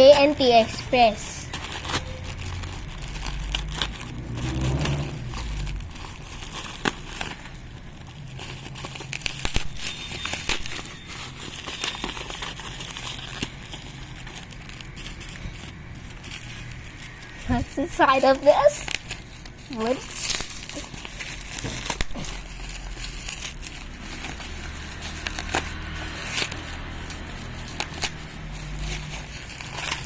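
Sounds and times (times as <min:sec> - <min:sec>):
packaging crinkling and rustling: 0:00.0 - 0:30.0.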